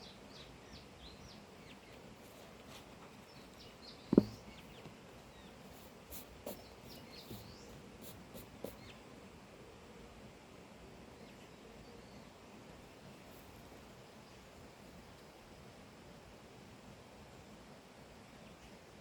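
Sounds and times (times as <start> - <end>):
small birds chirping: 0.0 - 9.2, 11.1 - 14.8
faint knocks: 4.1 - 5.0.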